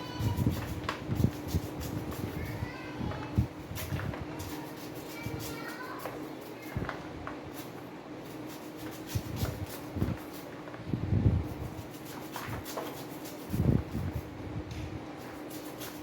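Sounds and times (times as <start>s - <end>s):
steady low hum: 0.0s - 16.0s
knife cutting corn kernels: 3.8s - 6.6s, 7.5s - 10.5s, 11.5s - 13.8s, 15.2s - 16.0s.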